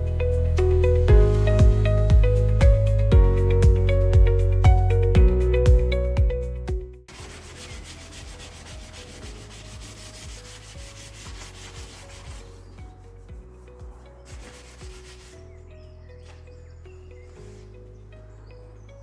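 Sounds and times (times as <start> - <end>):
loud background music: 0.0 - 18.5
sandpaper rubbing on metal: 7.1 - 13.3, 14.3 - 15.4.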